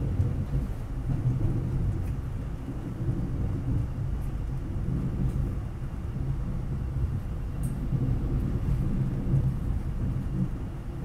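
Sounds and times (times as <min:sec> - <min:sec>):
train rumble inside coach: 0:00.0 - 0:11.0
faint ticks: 0:07.6 - 0:07.8.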